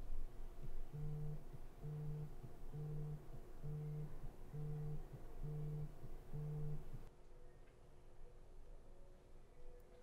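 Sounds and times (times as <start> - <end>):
phone vibrating on surface: 1.0 - 6.9.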